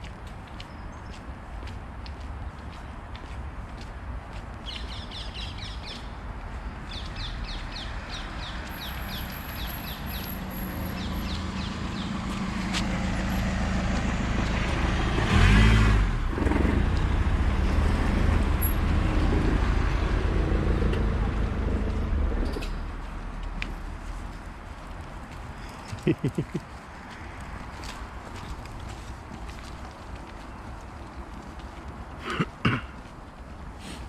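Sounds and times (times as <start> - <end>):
road traffic passing: 1.2 - 34.0
small bird chirping: 8.6 - 12.1
vehicle passing close: 8.7 - 23.5.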